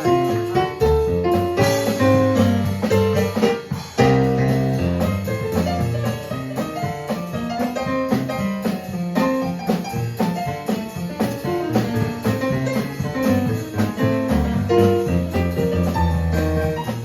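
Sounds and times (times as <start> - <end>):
drum kit: 0.0 - 17.0
keyboard melody and bass: 0.1 - 6.8, 11.2 - 17.0.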